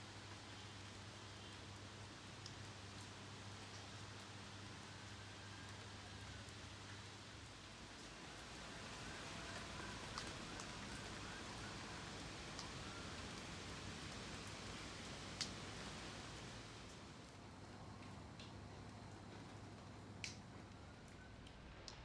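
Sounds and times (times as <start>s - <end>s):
rain falling: 0.0s - 22.0s
water drips: 12.5s - 15.6s, 17.8s - 22.0s.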